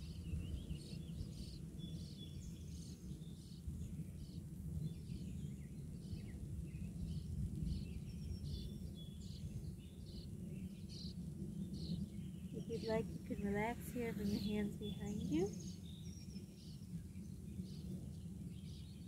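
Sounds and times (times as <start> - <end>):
birds chirping: 8.2 - 19.0
steady low rumble: 12.5 - 16.2.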